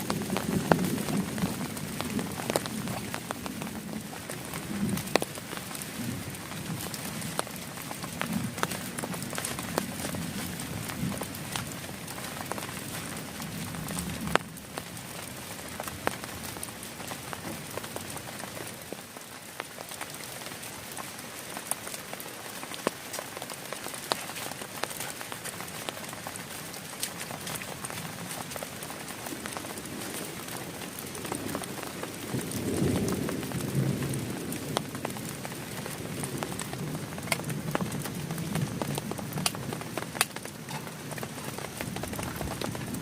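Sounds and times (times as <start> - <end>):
heavy rain on plastic tarp: 0.0 - 43.0.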